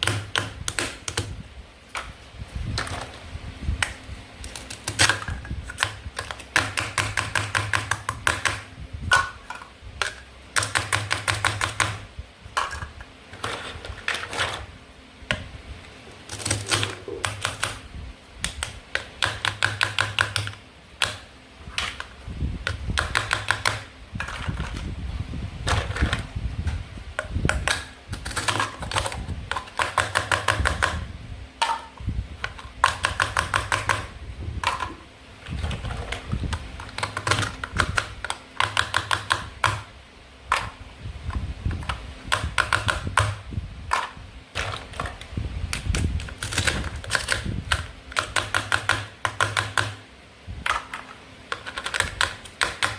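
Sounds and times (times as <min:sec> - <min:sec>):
plastic toy food clicking: 0:51.6 - 0:52.9.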